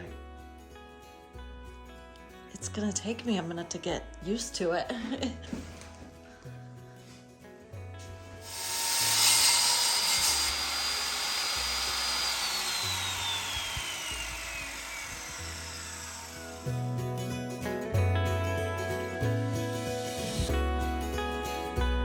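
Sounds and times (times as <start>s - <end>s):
power tool motor whining: 8.4s - 17.4s, 19.7s - 20.7s.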